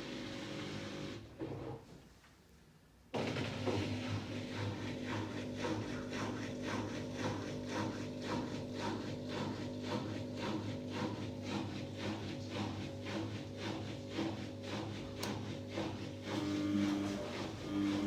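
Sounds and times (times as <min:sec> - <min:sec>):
washing machine drum hum: 0:03.2 - 0:07.4.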